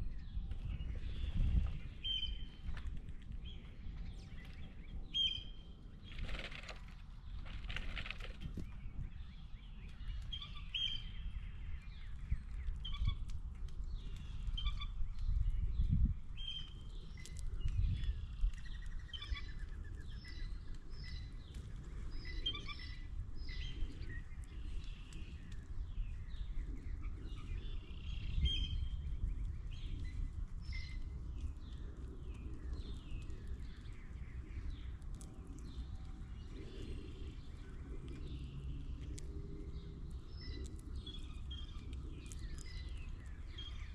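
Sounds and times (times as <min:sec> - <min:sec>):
birds chirping: 0:00.0 - 0:43.9
steady low rumble: 0:00.0 - 0:43.9.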